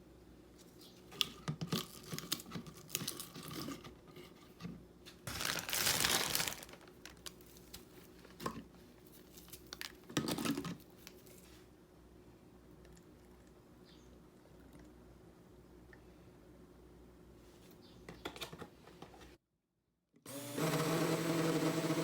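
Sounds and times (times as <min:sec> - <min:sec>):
packaging crinkling and rustling: 0:01.2 - 0:03.8, 0:05.2 - 0:11.5.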